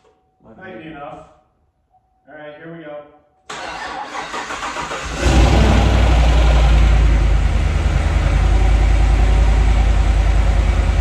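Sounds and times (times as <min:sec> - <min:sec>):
engine starter cranking: 0:03.5 - 0:06.3
loud engine idling: 0:04.4 - 0:11.0.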